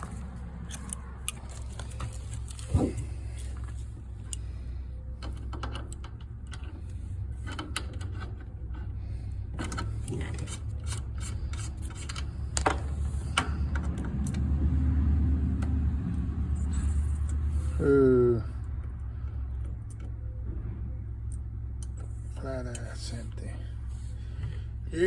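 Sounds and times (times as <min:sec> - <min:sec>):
tools clicking and rattling: 0:00.0 - 0:04.5, 0:09.6 - 0:14.4
air conditioner unit humming: 0:21.8 - 0:25.0.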